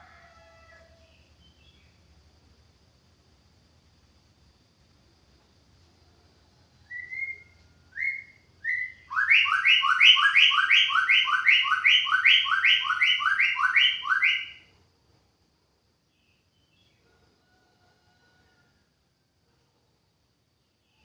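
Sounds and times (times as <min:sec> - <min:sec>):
bird singing whistles: 0:06.9 - 0:14.7.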